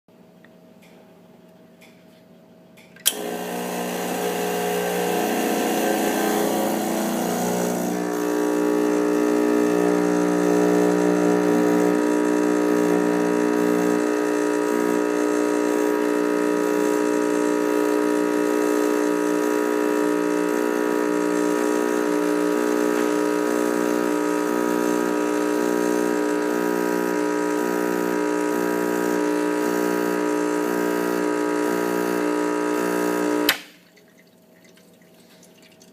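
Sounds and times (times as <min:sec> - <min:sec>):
espresso machine pump humming: 0:03.0 - 0:35.9.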